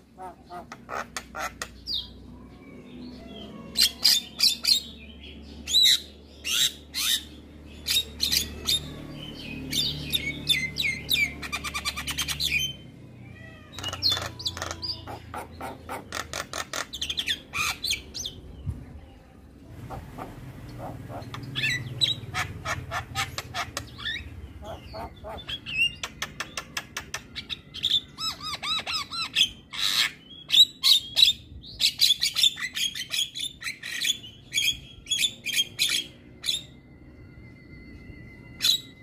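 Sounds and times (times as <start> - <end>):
myna squawking and chirping: 5.7 - 18.4, 19.7 - 36.8.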